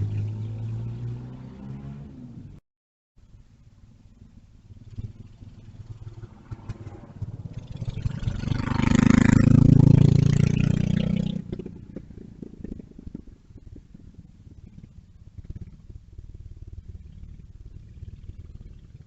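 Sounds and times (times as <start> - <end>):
mini bike engine passing by: 4.8 - 19.0.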